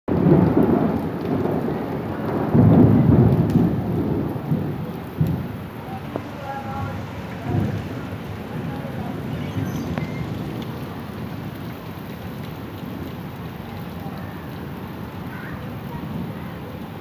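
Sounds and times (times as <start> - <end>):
thunder rolling: 0.1 - 13.1
rain falling: 0.1 - 17.0.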